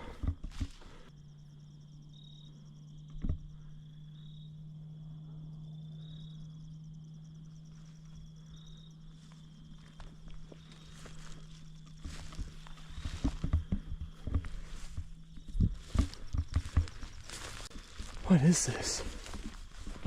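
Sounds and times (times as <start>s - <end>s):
footsteps: 0.0s - 1.1s, 9.2s - 20.0s
insect chirp: 0.0s - 20.0s
insects trilling: 0.0s - 20.0s.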